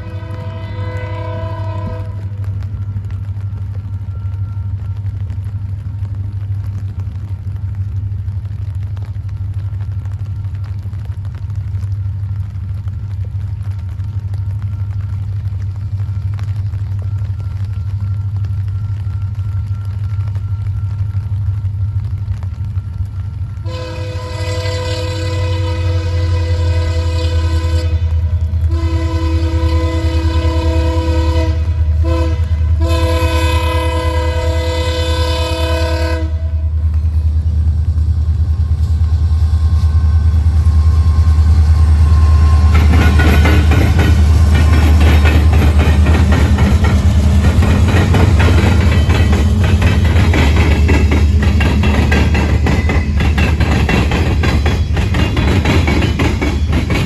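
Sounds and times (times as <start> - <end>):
locomotive horn: 0.0 - 3.4, 23.4 - 37.3, 38.4 - 53.4
diesel engine rumbling: 0.0 - 57.0
train wheels clattering on rails: 0.0 - 57.0.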